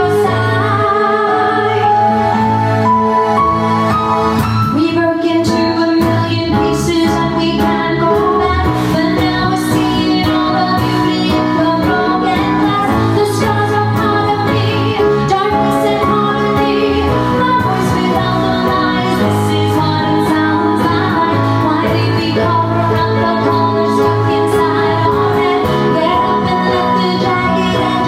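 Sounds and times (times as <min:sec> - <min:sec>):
pop song with steady beat: 0:00.0 - 0:28.0.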